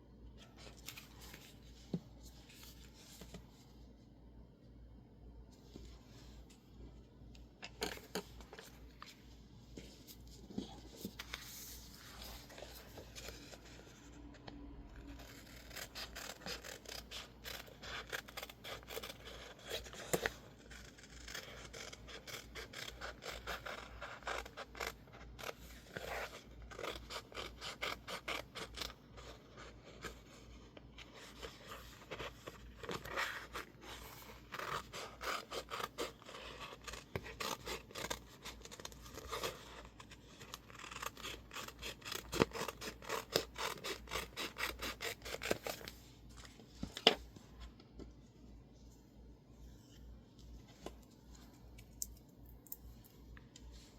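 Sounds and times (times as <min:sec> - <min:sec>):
scissors snipping paper: 0:15.0 - 0:28.9.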